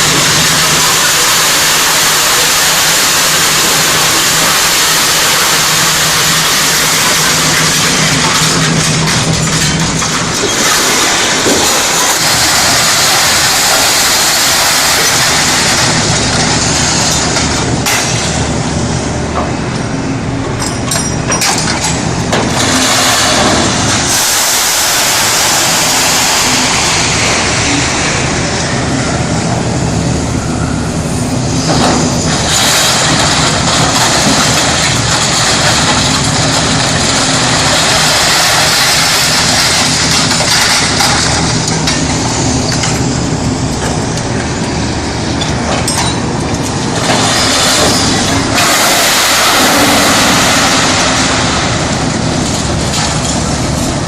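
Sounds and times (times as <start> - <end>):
diesel engine working: 0.0 - 54.0.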